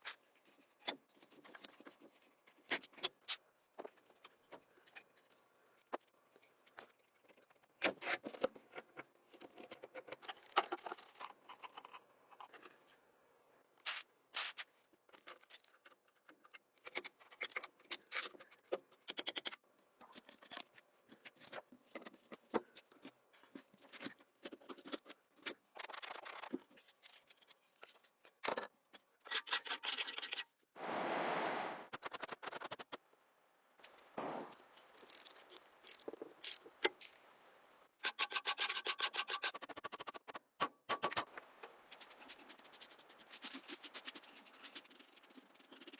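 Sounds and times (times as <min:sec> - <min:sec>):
steady noisy burst: 0:30.8 - 0:31.9.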